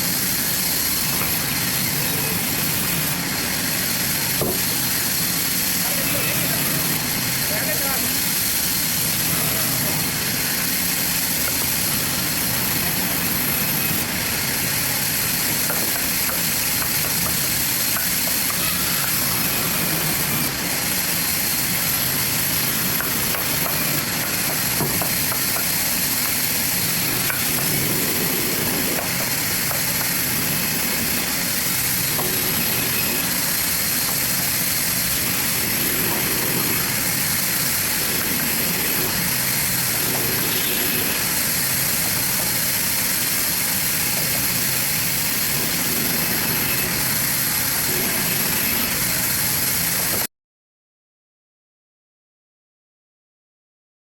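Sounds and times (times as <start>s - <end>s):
bandsaw cutting log: 0.0s - 50.3s.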